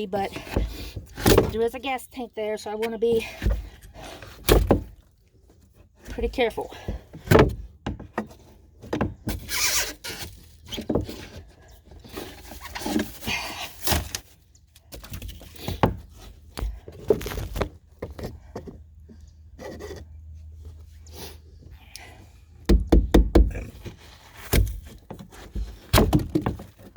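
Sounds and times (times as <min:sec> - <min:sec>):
hand tool scraping and breaking foam: 0:09.3 - 0:11.2, 0:23.5 - 0:26.7.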